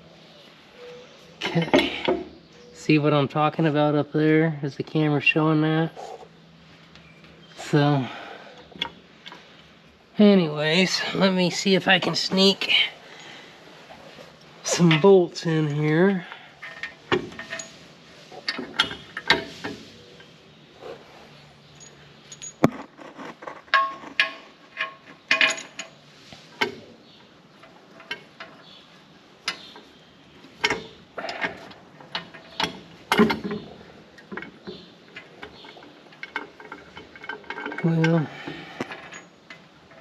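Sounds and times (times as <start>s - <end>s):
metal clinks of bolts and tools: 16.6s - 19.7s, 21.7s - 26.8s, 30.6s - 40.0s.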